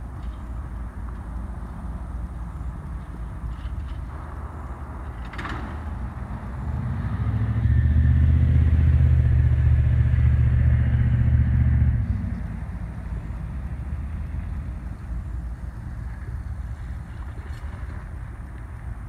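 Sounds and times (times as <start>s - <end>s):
low outdoor rumble: 0.0s - 19.0s
vehicle engine passing: 3.1s - 18.3s.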